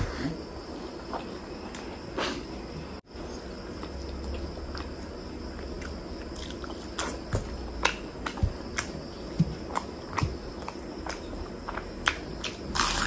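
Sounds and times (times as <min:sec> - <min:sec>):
close-miked chewing: 0:03.2 - 0:13.0.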